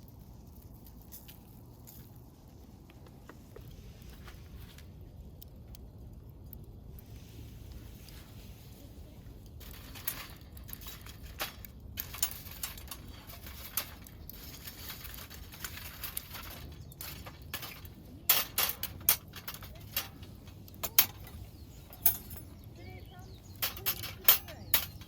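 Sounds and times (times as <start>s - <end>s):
cookware and utensils clinking: 9.7s - 22.6s, 23.4s - 25.0s.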